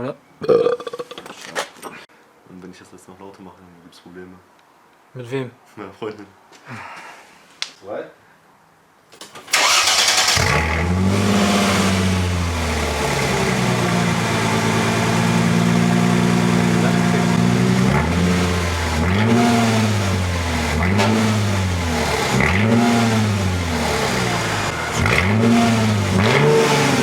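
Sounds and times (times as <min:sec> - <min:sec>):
car engine idling and revving: 0:09.6 - 0:27.0.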